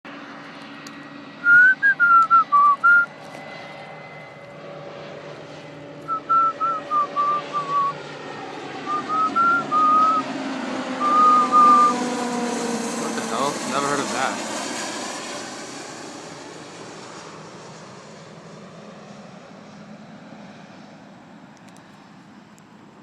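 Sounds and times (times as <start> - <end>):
airplane drone: 0.1 - 23.0
person whistling a tune: 1.4 - 3.1, 6.1 - 8.0, 8.9 - 10.2, 11.0 - 11.9.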